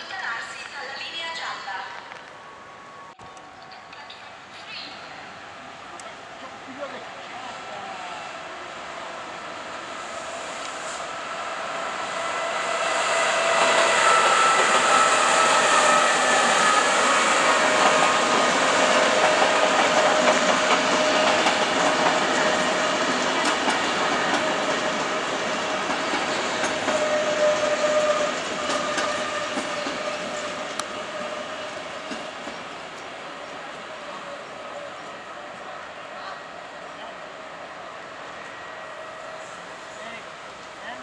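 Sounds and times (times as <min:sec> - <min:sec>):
train clatter over track: 0:12.1 - 0:37.4.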